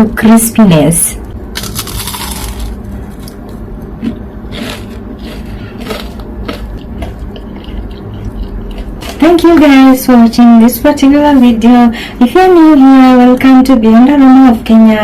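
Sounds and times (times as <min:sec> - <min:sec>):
crunchy chewing: 0:01.6 - 0:09.4.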